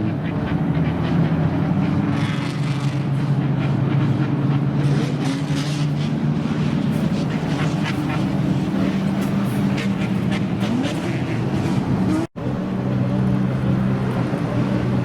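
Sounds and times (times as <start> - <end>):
car engine idling: 5.8 - 15.0.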